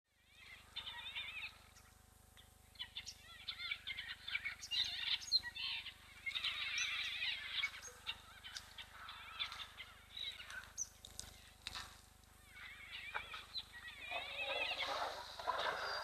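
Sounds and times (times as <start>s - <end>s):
small birds chirping and twittering: 0.1s - 16.0s.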